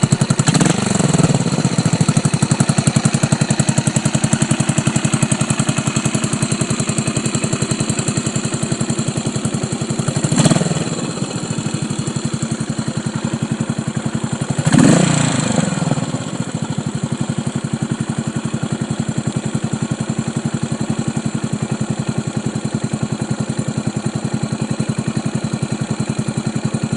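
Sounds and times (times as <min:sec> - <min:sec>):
engine revving: 0:00.0 - 0:02.4, 0:10.1 - 0:11.9, 0:14.6 - 0:16.7
motorcycle engine idling: 0:00.0 - 0:26.9.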